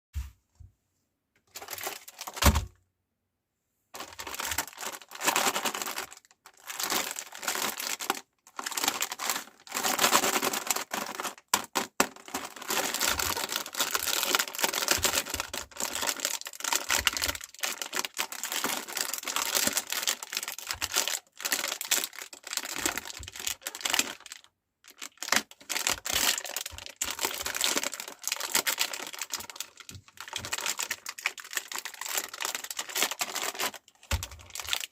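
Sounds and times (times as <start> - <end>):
cookies crunching in meat grinder: 4.0 - 24.2, 25.0 - 34.9.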